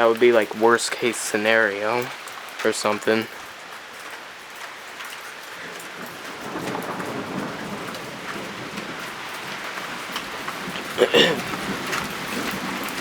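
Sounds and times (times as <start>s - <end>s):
rain drops ticking: 0.0s - 13.0s
low rumble of thunder: 5.6s - 13.0s.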